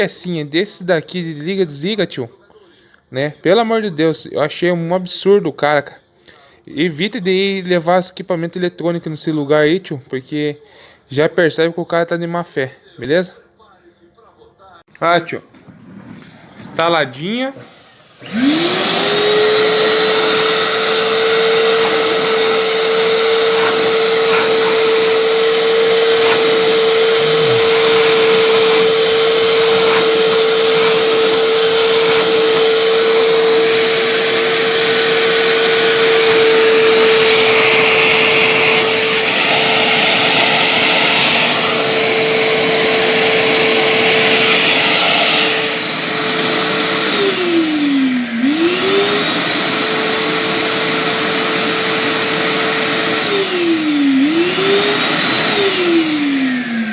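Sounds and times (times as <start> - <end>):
vacuum cleaner motor whining: 16.2 - 56.9.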